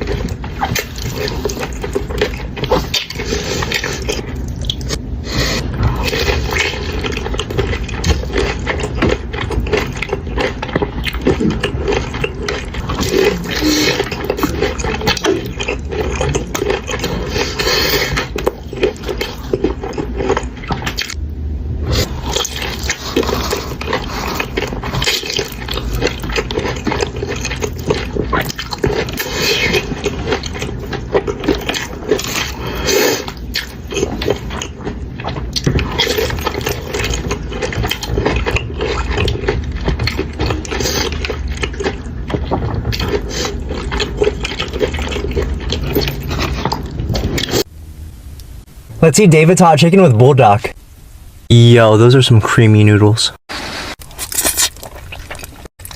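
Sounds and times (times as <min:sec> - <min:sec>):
chewing and biting food: 0:00.0 - 0:21.2, 0:21.8 - 0:47.7, 0:54.0 - 0:55.9.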